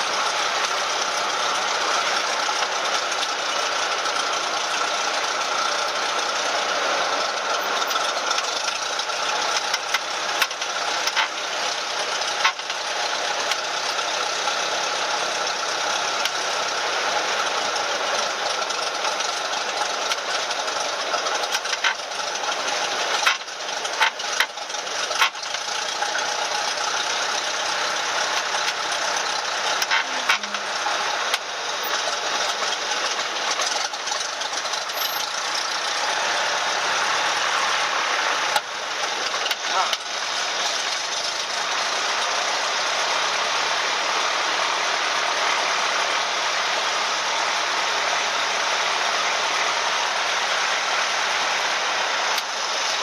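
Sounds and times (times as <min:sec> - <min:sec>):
airplane engine from cabin: 0:29.9 - 0:31.0.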